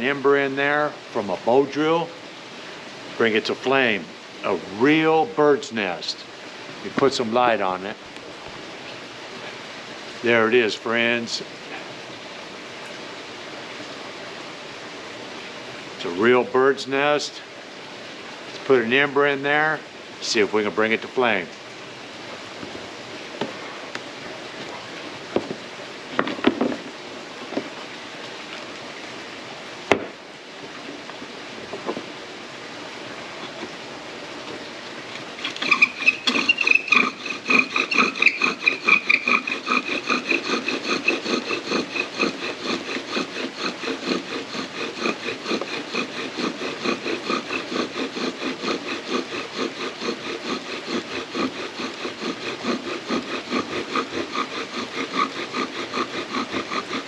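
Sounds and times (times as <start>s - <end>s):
knocks of wood: 25.3s - 25.6s, 26.2s - 26.9s, 29.9s - 30.2s
wooden spindle squeaking and grinding: 35.4s - 57.0s.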